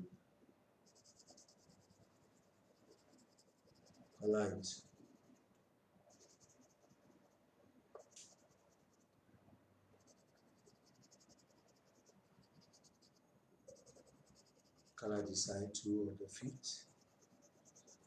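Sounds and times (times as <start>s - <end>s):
pencil scratching on paper: 0.8s - 5.4s, 6.1s - 7.4s, 8.0s - 9.0s, 10.0s - 15.7s, 16.8s - 18.0s.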